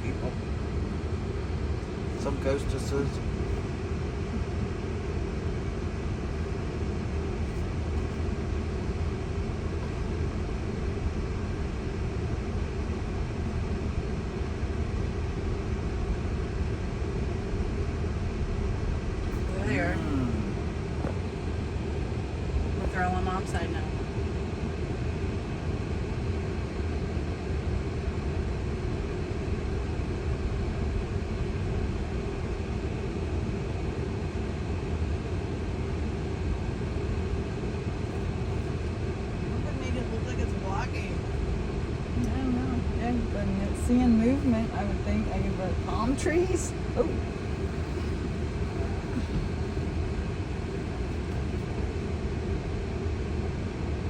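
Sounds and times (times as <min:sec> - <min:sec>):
road and tyre rumble: 0:00.0 - 0:25.6
road and tyre noise in car: 0:00.0 - 0:54.0.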